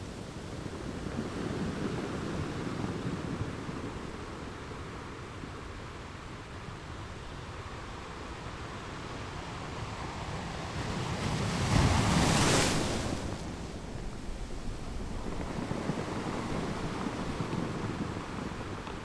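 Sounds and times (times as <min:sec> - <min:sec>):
ocean waves breaking on shore: 0:09.4 - 0:19.0.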